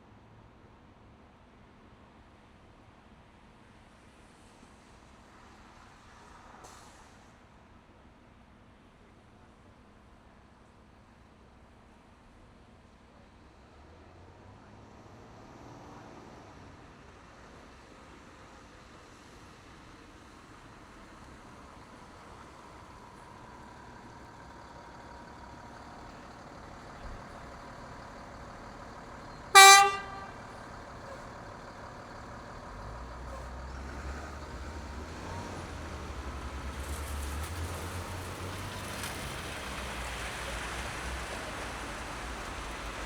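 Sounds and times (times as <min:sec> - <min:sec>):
street traffic noise: 0:02.1 - 0:11.8, 0:12.4 - 0:43.0
tyre hiss on snowy road: 0:03.9 - 0:07.6
low engine rumble: 0:21.1 - 0:43.0
vehicle horn honk: 0:29.5 - 0:30.4.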